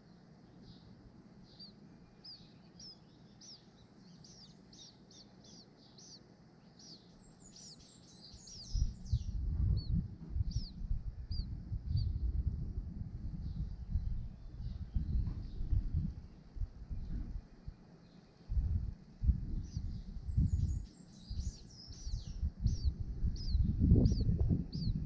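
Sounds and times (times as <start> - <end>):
small birds chirping: 0.0 - 25.0
low rumbling noise: 8.4 - 17.8, 18.5 - 25.0.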